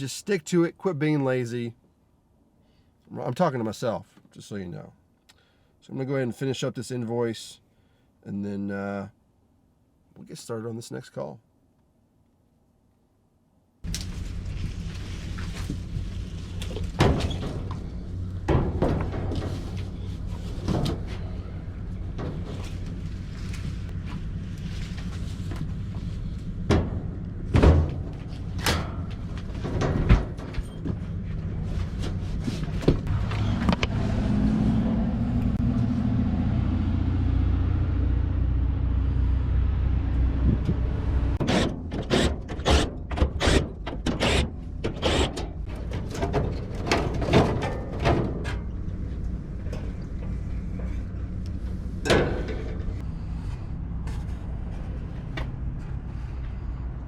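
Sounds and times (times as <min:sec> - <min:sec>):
vehicle engine rumbling: 0:13.8 - 0:57.0.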